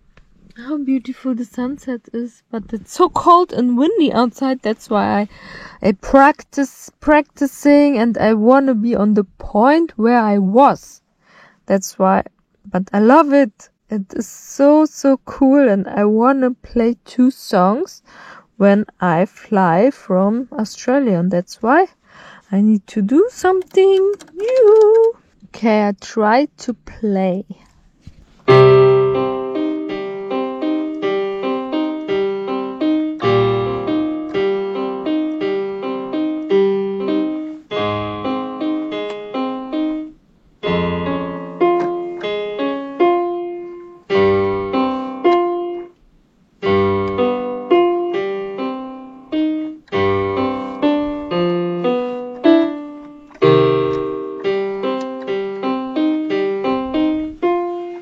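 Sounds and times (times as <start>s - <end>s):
piano tune on a keyboard: 28.4s - 46.0s, 46.6s - 58.0s.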